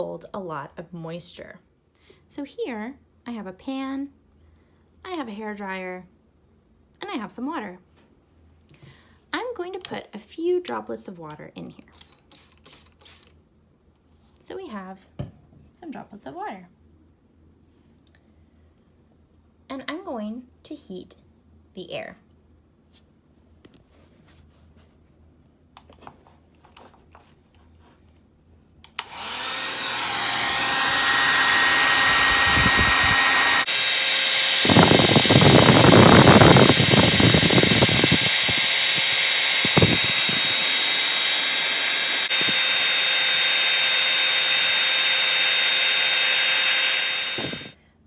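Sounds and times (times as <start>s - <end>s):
hair dryer whining: 29.0s - 47.8s.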